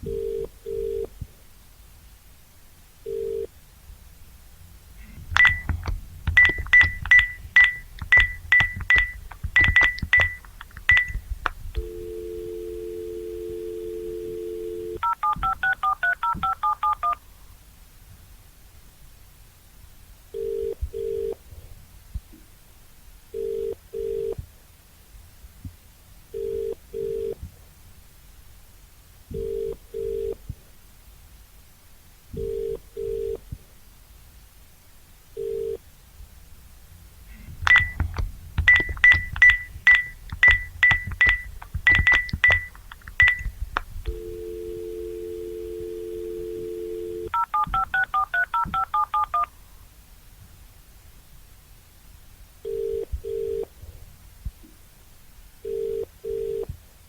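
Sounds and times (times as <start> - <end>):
telephone ringing tone: 0.1 - 1.1, 3.1 - 3.5, 5.4 - 11.2, 11.8 - 17.2, 35.4 - 35.8, 38.7 - 43.5, 44.1 - 49.5, 52.7 - 53.7, 55.7 - 56.7
keypad beeps: 5.4 - 11.2, 14.9 - 17.2, 37.7 - 45.0, 46.8 - 49.5
touch-tone dialing beeps: 5.4 - 11.2, 11.8 - 17.2, 37.7 - 43.5, 44.1 - 49.5
dial tone: 11.8 - 17.2, 44.1 - 49.4, 52.7 - 53.7, 55.7 - 56.7.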